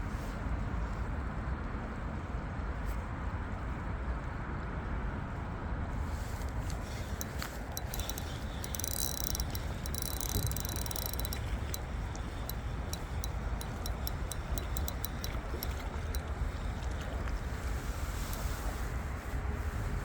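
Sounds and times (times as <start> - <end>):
low wind rumble on microphone: 0.0 - 20.0
small sharp ticks: 6.3 - 18.7.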